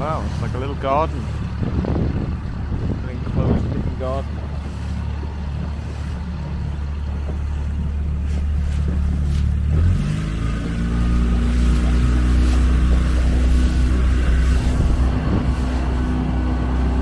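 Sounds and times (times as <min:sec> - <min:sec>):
motorboat engine running: 0:00.0 - 0:17.0.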